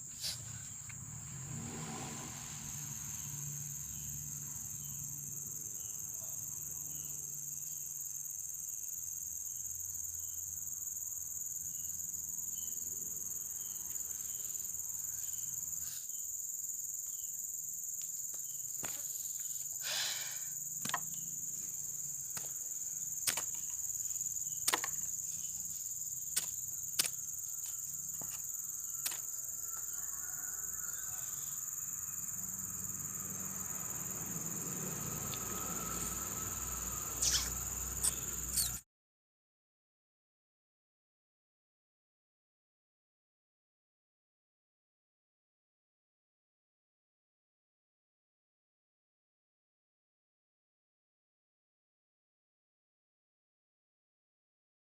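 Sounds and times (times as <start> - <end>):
insect chorus: 0.0 - 38.8.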